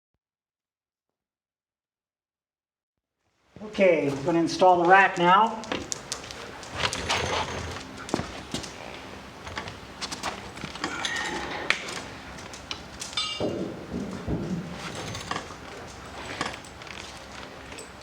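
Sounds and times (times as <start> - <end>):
metal parts clinking and knocking: 5.6 - 18.0.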